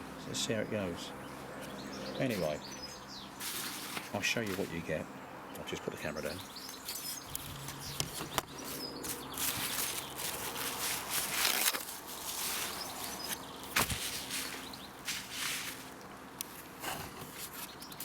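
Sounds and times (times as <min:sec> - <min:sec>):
handling rustling: 0:03.4 - 0:04.9, 0:06.7 - 0:18.0.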